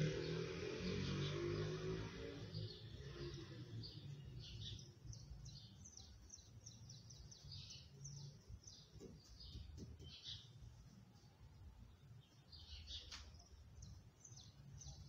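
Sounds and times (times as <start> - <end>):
small birds chirping: 0.0 - 15.0
low background hum: 3.5 - 15.0.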